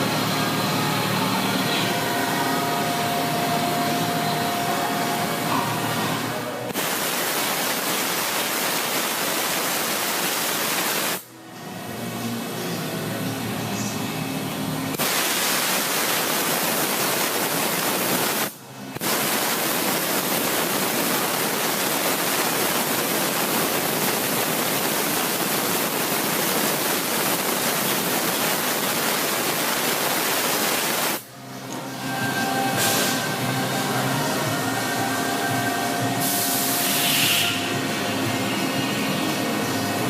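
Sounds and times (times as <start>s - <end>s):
lathe rushing hiss: 15.0s - 31.2s, 32.0s - 38.2s.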